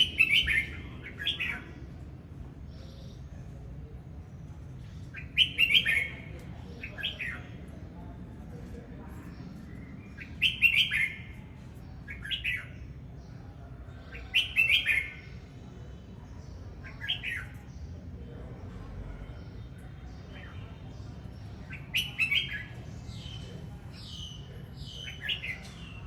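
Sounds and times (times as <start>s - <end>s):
bird singing warbled phrases: 0.0s - 2.0s, 5.0s - 7.9s, 9.2s - 18.5s, 19.4s - 26.0s.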